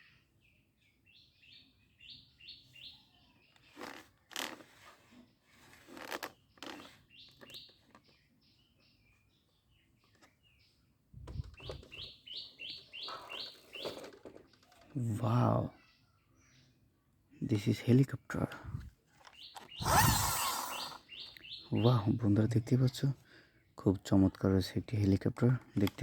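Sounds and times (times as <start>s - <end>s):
bird chirping: 0.0s - 4.3s, 5.0s - 16.9s, 19.2s - 23.0s.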